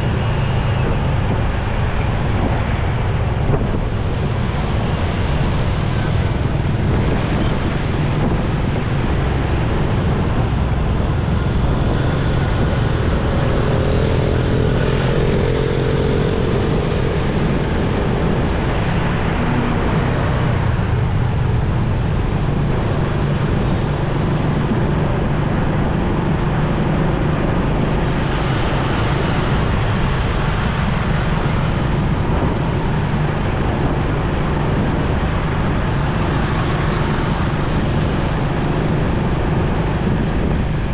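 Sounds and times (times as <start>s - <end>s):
passing vehicles: 0.0s - 40.9s
wind and road noise: 0.0s - 40.9s
motorcycle engine: 1.9s - 25.2s
faint wavering engine tone: 4.4s - 23.0s.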